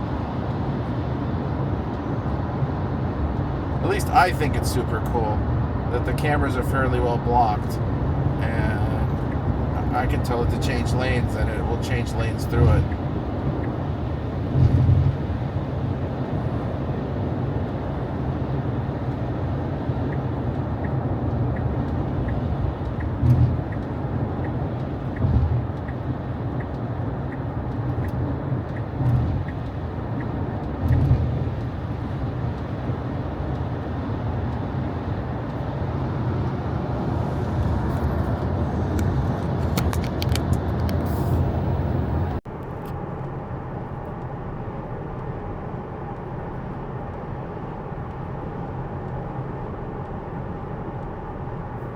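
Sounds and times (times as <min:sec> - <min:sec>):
turn signal ticking: 0:00.0 - 0:42.4
tyre rumble on wet road: 0:27.7 - 0:42.2.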